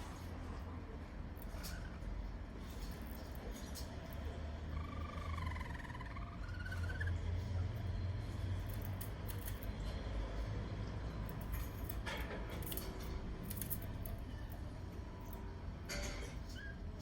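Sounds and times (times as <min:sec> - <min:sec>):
canary cracking seeds: 0:08.6 - 0:09.9, 0:11.3 - 0:14.6.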